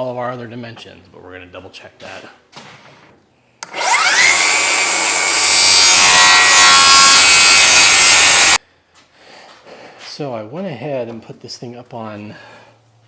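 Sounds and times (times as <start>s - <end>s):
electric saw motor whining: 3.6s - 8.6s
saw cutting through plywood: 3.6s - 8.6s.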